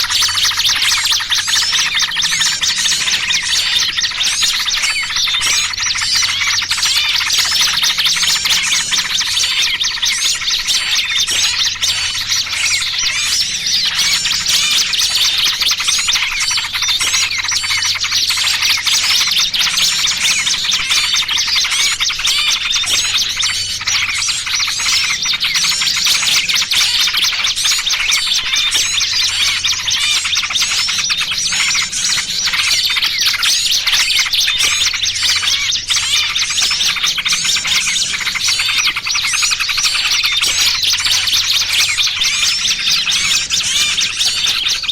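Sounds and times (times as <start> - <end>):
bird distress calls: 0.0 - 44.9
small birds chirping: 0.0 - 44.9.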